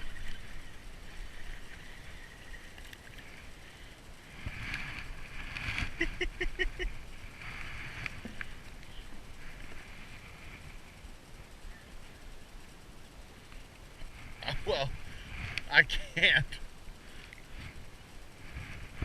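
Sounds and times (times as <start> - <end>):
water splashing around kayak: 0.0 - 12.2.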